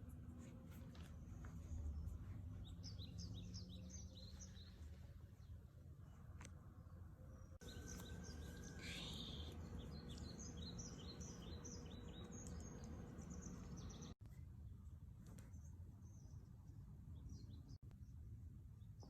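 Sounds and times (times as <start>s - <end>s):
low steady hum: 0.0s - 19.0s
bird chirping: 1.0s - 5.6s, 7.3s - 14.2s.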